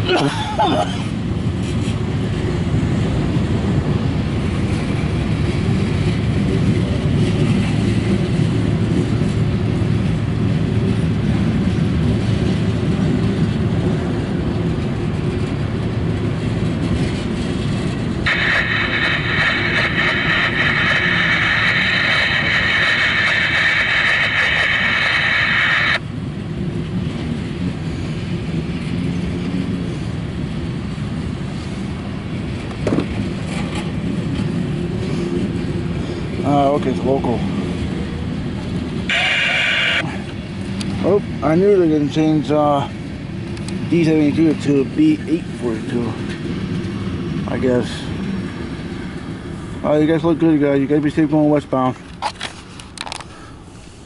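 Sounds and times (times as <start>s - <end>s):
freight train cars rumbling: 0.0s - 54.0s
high steady squeal: 18.3s - 26.0s, 39.1s - 40.0s.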